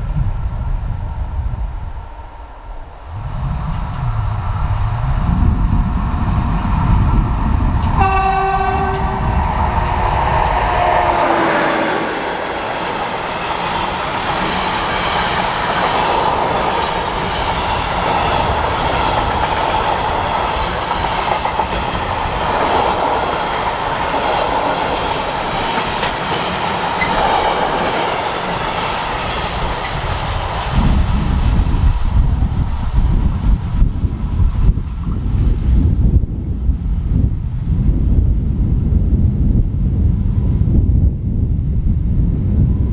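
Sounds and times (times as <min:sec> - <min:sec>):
train passing: 0:00.0 - 0:42.9
wheels clattering on rails: 0:03.5 - 0:33.6
train horn: 0:07.8 - 0:13.0.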